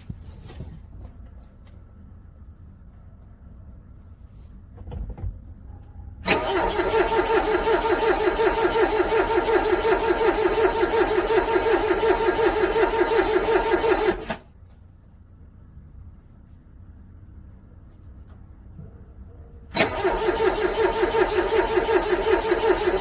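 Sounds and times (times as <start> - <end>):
car engine cranking on starter: 6.2 - 14.5, 19.7 - 23.0.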